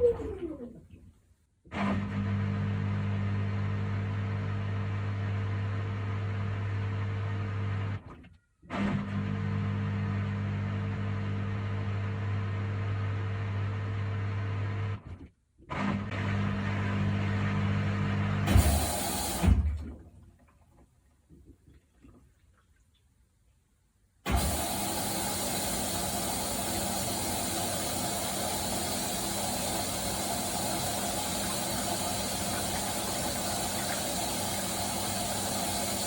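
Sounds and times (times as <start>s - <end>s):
washing machine motor hum: 2.0s - 8.1s, 8.8s - 15.0s, 16.0s - 20.1s, 24.3s - 36.0s.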